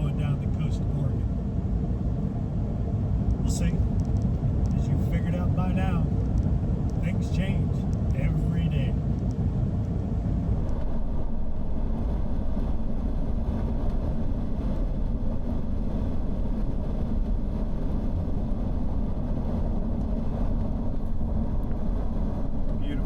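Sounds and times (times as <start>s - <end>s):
road and engine noise inside vehicle: 0.0s - 23.0s.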